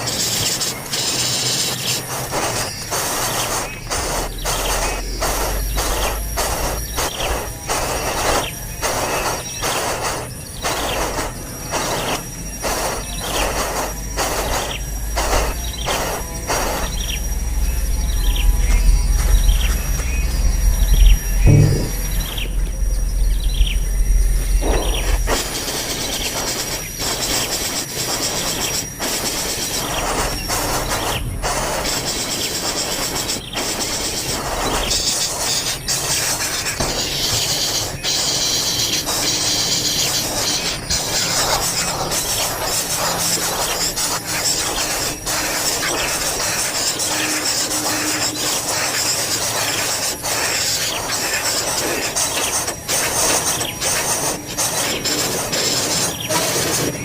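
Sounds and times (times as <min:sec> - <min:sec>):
steady hiss: 0:00.0 - 0:57.0
low rumble: 0:14.9 - 0:25.8.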